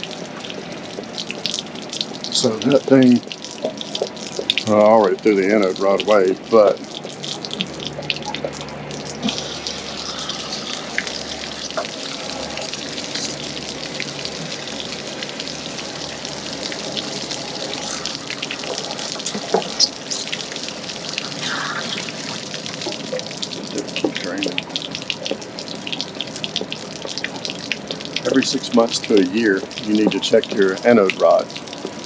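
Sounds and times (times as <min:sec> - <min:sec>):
water pouring and splashing: 0:00.0 - 0:32.0.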